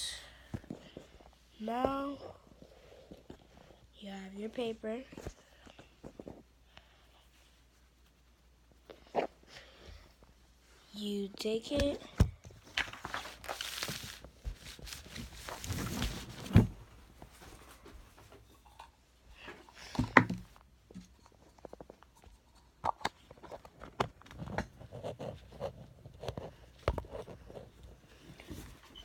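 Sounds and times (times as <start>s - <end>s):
paper rustling: 12.5s - 18.0s.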